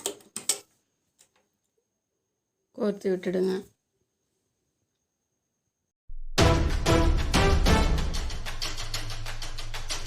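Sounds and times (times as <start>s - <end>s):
music with punchy beat: 6.4s - 9.0s.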